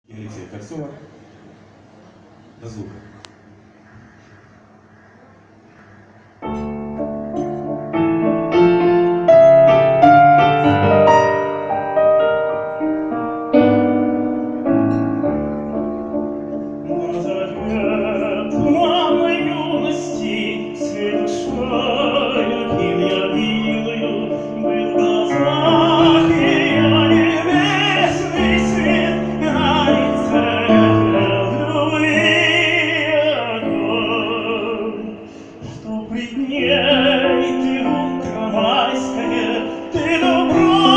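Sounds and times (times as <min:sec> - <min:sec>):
solo piano: 0:06.1 - 0:40.9
operatic voice singing: 0:16.9 - 0:40.9.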